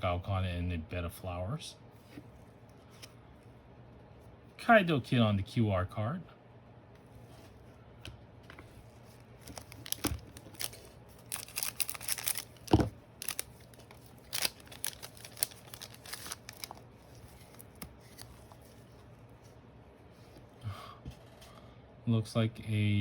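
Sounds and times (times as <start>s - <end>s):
cards being handled: 8.5s - 19.6s
wrapper crinkling and tearing: 9.1s - 18.6s.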